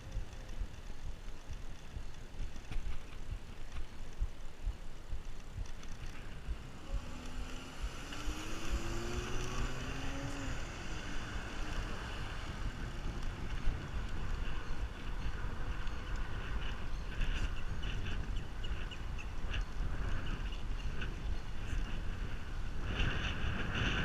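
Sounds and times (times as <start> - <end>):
bicycle road noise: 0.0 - 24.0
wind buffeting microphone: 0.0 - 24.0
faint rising motor hum: 6.3 - 12.8.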